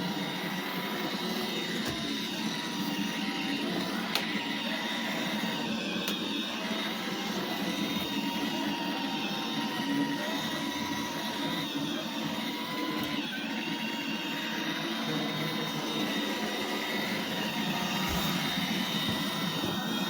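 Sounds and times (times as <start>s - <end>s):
robot vacuum whirring: 0.0s - 20.0s.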